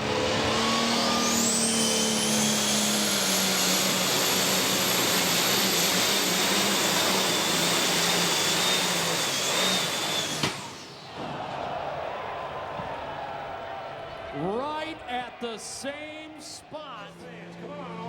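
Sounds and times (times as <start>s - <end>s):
diesel tractor engine at full throttle: 0.0s - 11.2s
high turbo whine: 0.0s - 11.2s.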